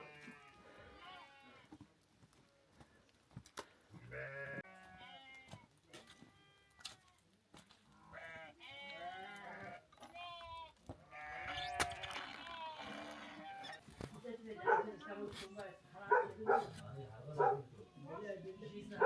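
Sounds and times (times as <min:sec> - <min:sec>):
sheep bleating: 0:00.0 - 0:01.7, 0:04.1 - 0:05.5, 0:08.1 - 0:13.8, 0:17.4 - 0:19.0.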